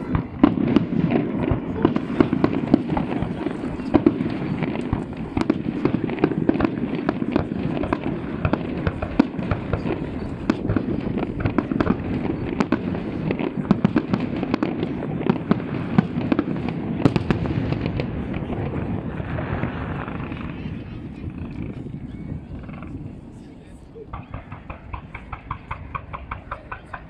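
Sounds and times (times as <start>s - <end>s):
firework shells bursting: 24.1s - 27.0s.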